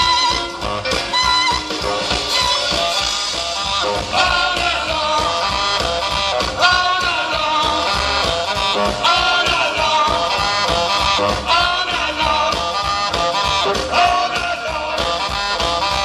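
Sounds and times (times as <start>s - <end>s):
live rock and roll band: 0.0s - 16.0s.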